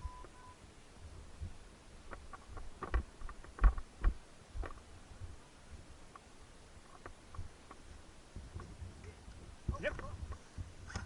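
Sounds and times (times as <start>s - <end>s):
two-way radio beep: 0.0s - 0.6s.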